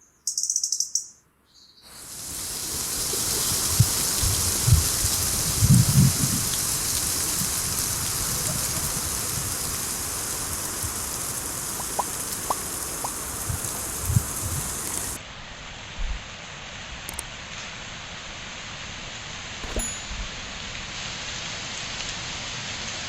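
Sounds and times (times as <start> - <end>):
wind rustling leaves: 1.8 - 23.0
wind buffeting microphone: 2.1 - 15.2.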